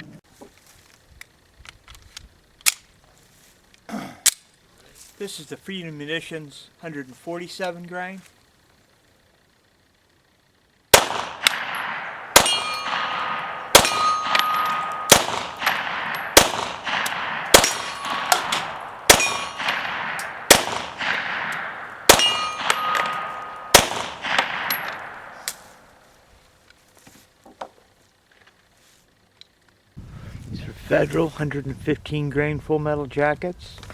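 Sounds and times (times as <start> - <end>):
pistol shots: 10.9 - 26.0
metallic ring: 11.5 - 25.9.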